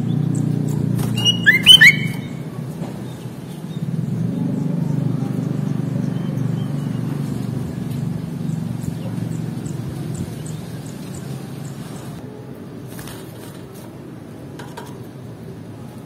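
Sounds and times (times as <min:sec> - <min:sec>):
low engine rumble: 0:00.0 - 0:16.0
faint bird chirps: 0:01.1 - 0:02.5.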